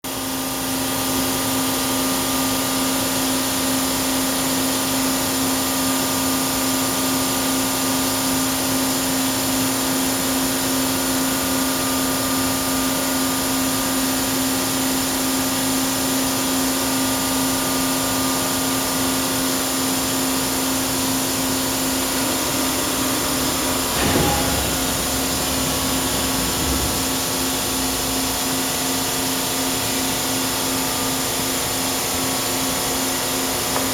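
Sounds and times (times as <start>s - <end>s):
lathe machine hum: 4.9s - 33.9s
knock with low rumble: 21.7s - 28.5s.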